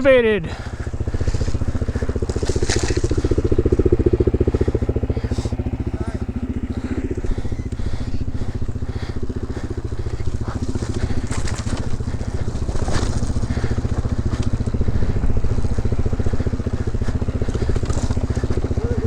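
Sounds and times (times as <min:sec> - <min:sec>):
dirt bike engine running: 0:00.0 - 0:19.0
tyres crunching over rocks: 0:00.6 - 0:19.0.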